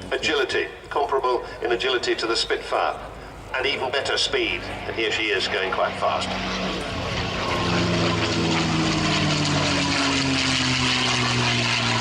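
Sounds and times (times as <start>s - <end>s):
propeller plane engine passing: 0.0s - 12.0s.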